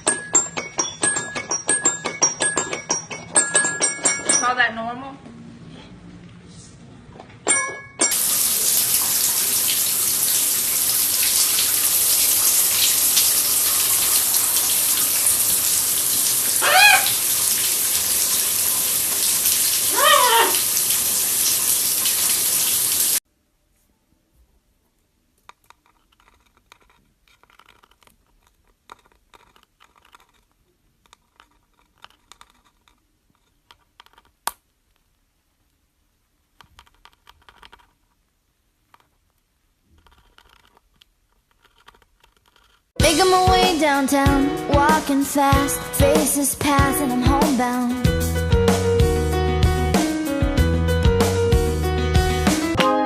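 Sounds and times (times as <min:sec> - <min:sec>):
tap water running: 0:08.1 - 0:23.2, 0:43.0 - 0:47.6.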